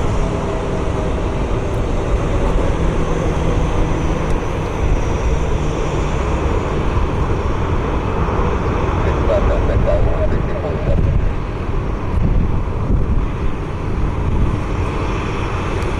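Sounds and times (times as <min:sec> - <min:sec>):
jet engines rushing: 0:01.8 - 0:12.8
faint high whine: 0:09.0 - 0:11.8.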